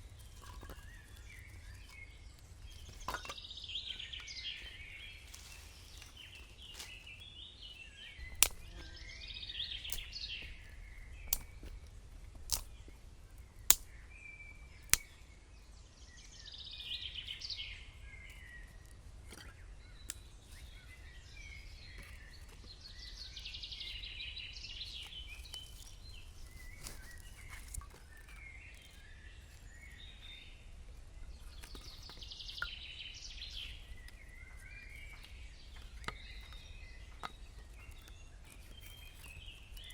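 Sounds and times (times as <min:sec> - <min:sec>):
birds singing: 0:00.0 - 0:39.9
sharp cracks: 0:08.4 - 0:08.7, 0:12.5 - 0:12.7, 0:13.7 - 0:14.0.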